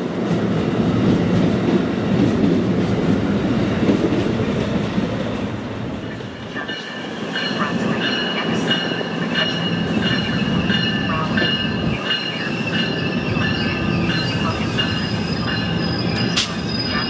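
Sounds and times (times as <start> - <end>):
train rumble: 0.0 - 17.0
train wheels squealing on rails: 6.1 - 17.0.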